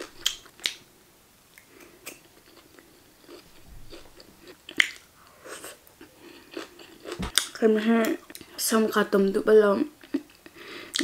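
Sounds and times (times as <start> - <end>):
chewing food: 1.6 - 5.0, 5.6 - 8.6
crunches and smacks: 7.1 - 7.4.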